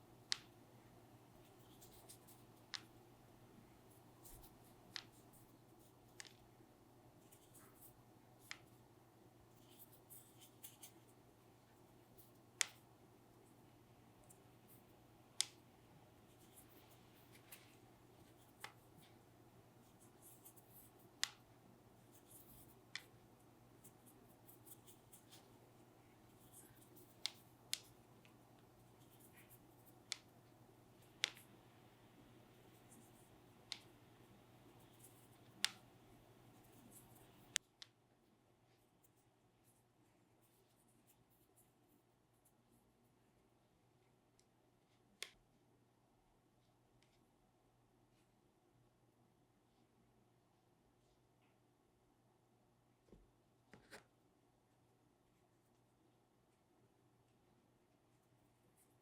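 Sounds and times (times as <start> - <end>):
faint low steady hum: 0.0 - 59.0
sharp small clicks and taps: 31.0 - 31.5, 33.0 - 33.9.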